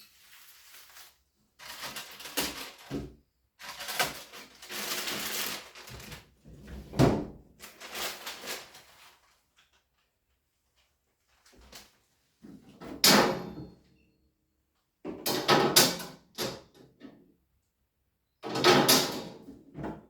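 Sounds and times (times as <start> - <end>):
packaging rustling: 3.6 - 6.3.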